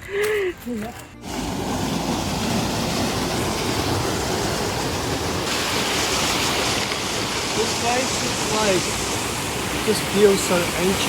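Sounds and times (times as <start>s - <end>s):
waterfall rushing: 1.2s - 11.0s.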